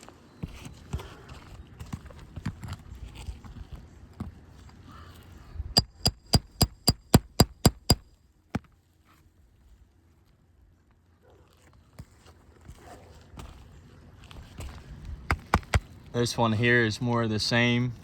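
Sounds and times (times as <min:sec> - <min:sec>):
hammer striking steel: 0:05.8 - 0:08.0.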